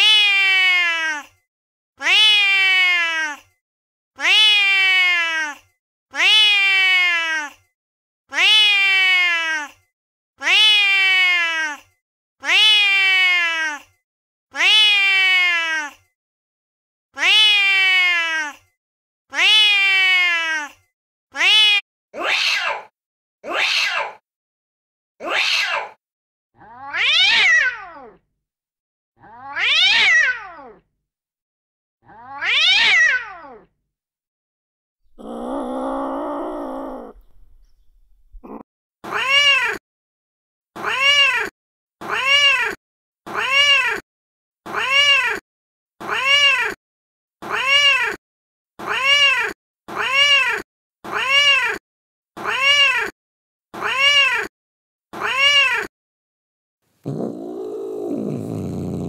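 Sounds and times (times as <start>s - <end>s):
recorded cat yowls: 0.0s - 1.4s, 2.0s - 3.5s, 4.2s - 7.6s, 8.3s - 9.8s, 10.4s - 11.8s, 12.4s - 13.9s, 14.6s - 16.0s, 17.2s - 18.7s, 19.3s - 20.8s, 21.4s - 24.2s, 25.2s - 26.0s, 26.6s - 28.2s, 29.2s - 30.8s, 32.0s - 33.7s, 35.1s - 39.8s, 40.8s - 44.0s, 44.7s - 45.4s, 46.0s - 46.8s, 47.4s - 48.2s, 48.8s - 51.8s, 52.4s - 53.1s, 53.8s - 54.5s, 55.2s - 55.9s, 57.1s - 59.0s.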